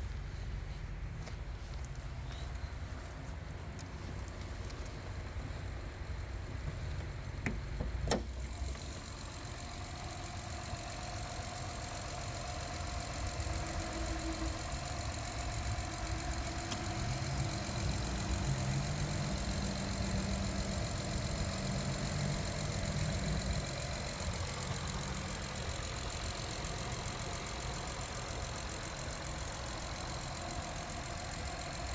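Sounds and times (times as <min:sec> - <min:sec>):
car engine idling: 0:00.0 - 0:31.9
sharp clicks: 0:12.1 - 0:31.9.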